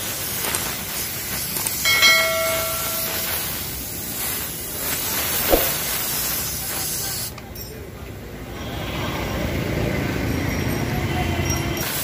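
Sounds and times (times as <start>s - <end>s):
metallic ring: 1.9s - 3.7s.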